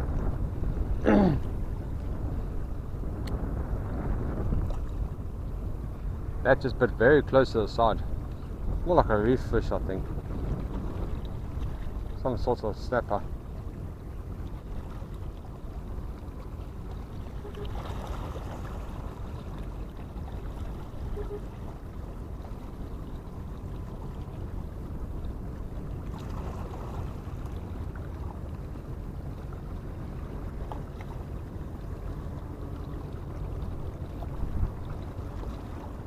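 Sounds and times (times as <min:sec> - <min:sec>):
water: 0:00.0 - 0:36.0
wind: 0:00.0 - 0:36.0.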